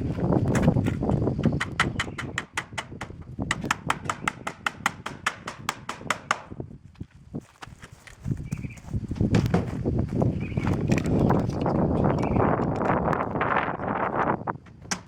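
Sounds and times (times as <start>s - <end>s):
hammer tapping a nail: 1.4s - 6.6s.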